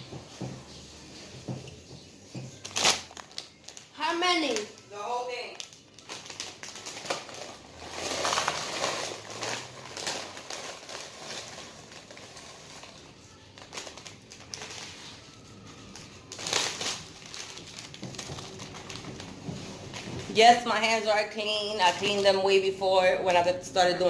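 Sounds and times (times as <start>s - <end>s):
chip bag crinkling: 2.6s - 20.2s.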